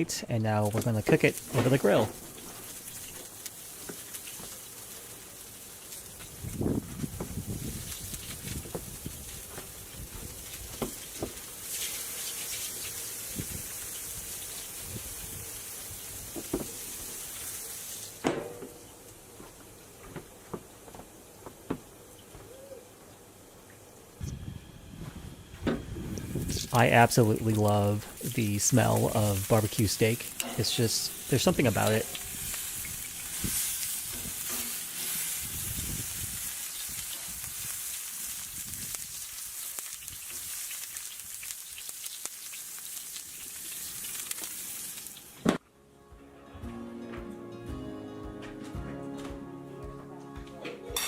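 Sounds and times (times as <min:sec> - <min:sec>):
steak sizzling on a grill: 0:00.9 - 0:18.2, 0:26.4 - 0:45.4
utensils tapping on grill: 0:29.6 - 0:32.3, 0:34.1 - 0:35.2.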